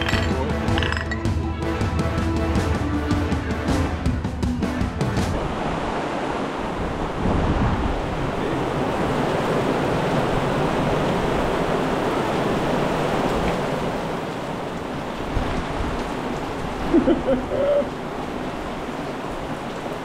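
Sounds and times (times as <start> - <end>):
heavy rain pouring: 0.0 - 1.1, 5.0 - 20.0.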